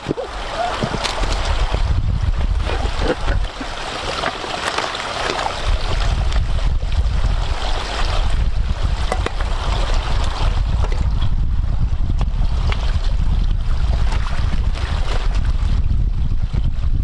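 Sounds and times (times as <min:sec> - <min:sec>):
wind blowing across microphone: 0:00.0 - 0:04.5, 0:05.4 - 0:17.0.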